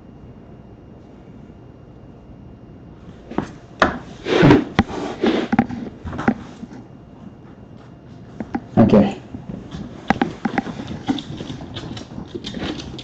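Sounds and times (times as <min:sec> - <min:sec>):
scraping and rubbing: 0:04.0 - 0:06.8, 0:09.6 - 0:13.0
sharp knocks and clicks: 0:10.1 - 0:13.0.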